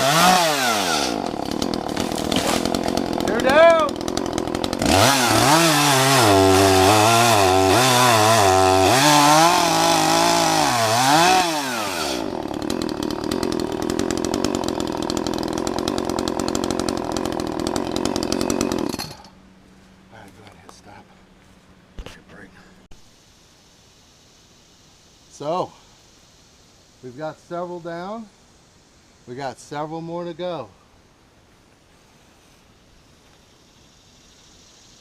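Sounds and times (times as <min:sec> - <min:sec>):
chainsaw engine revving and idling: 0:00.0 - 0:19.4.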